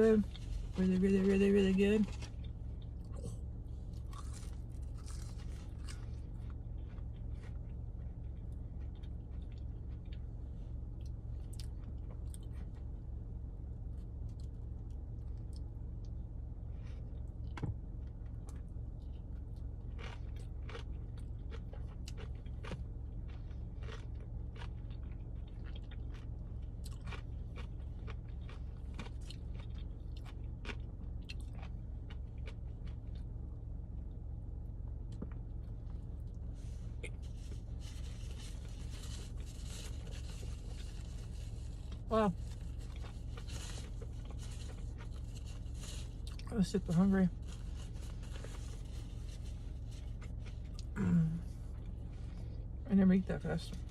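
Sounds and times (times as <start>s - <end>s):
person chewing food: 2.0s - 12.9s, 18.4s - 33.6s, 35.1s - 46.5s, 47.3s - 52.7s.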